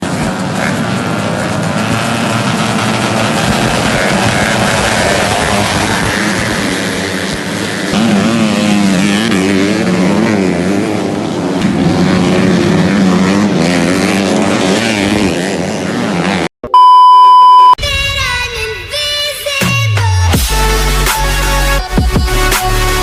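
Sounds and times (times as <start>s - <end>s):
dirt bike engines revving: 0.0s - 16.5s
loud electronic beep: 16.6s - 17.8s
music: 18.1s - 23.0s.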